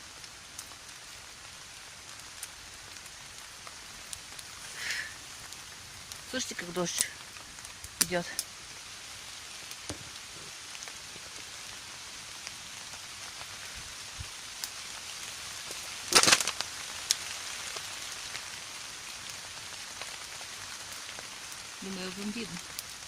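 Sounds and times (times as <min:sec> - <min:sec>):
steady rain falling: 0:00.0 - 0:23.0
burst of crackles: 0:00.1 - 0:23.0.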